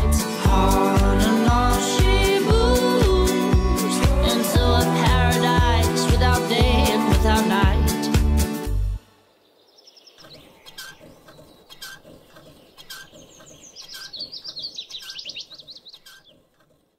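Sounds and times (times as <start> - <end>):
songbirds chirping and trilling: 0.0 - 8.1, 9.1 - 16.9
music: 0.0 - 9.2
faint ticking: 10.2 - 16.9.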